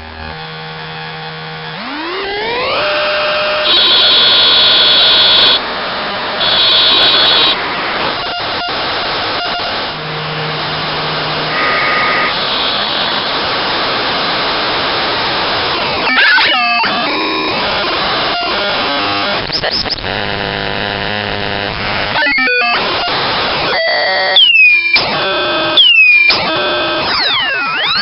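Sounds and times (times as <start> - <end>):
harsh synthesizer noise: 0.2 - 28.0
high steady tones: 6.4 - 13.0.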